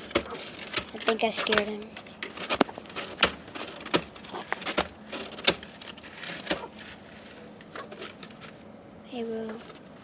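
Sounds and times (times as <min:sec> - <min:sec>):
sharp clicks and knocks: 0:00.0 - 0:06.7
rustling and crinkling: 0:00.0 - 0:10.0.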